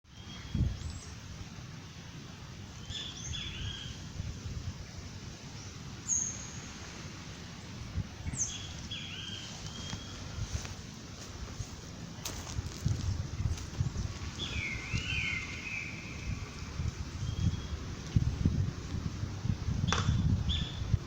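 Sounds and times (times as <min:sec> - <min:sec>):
bird chirping song: 0:00.1 - 0:01.2, 0:02.7 - 0:04.0, 0:05.6 - 0:06.8, 0:07.5 - 0:10.4, 0:13.7 - 0:17.9, 0:19.8 - 0:21.0
low outdoor rumble: 0:00.2 - 0:21.0.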